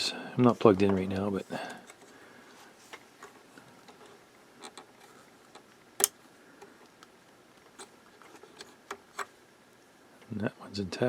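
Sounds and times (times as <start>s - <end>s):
small parts clicking and tapping: 3.2s - 9.3s.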